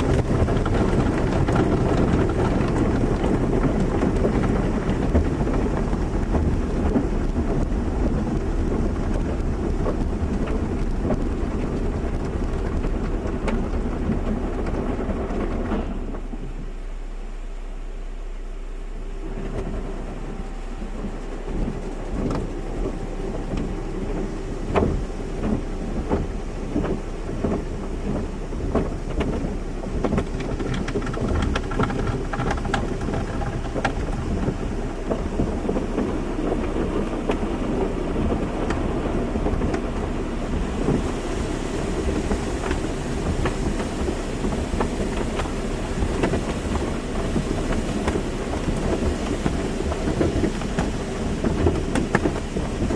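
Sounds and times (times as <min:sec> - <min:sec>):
machine hum: 0:00.0 - 0:52.9
water spraying on a car: 0:00.0 - 0:52.9.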